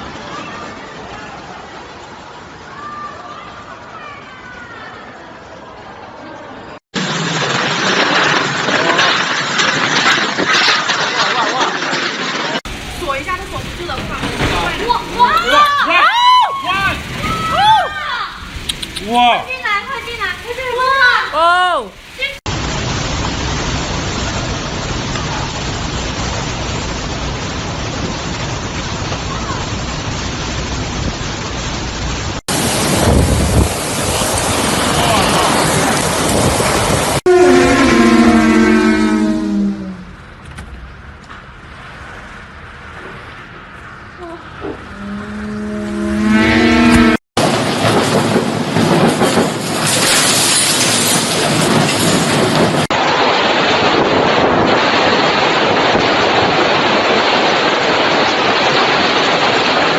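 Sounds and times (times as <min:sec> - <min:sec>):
strong wind rushing: 0:32.5 - 0:40.3, 0:51.7 - 0:59.9
wind buffeting microphone: 0:32.6 - 0:38.4.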